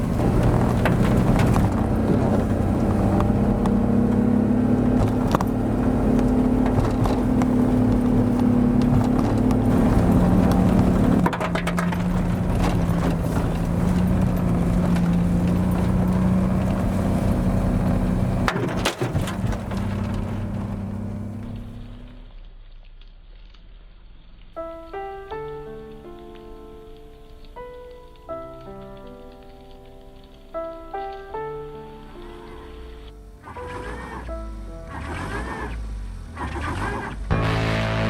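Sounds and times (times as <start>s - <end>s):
sharp clicks and knocks: 0.0s - 22.1s
truck engine running: 0.0s - 22.3s.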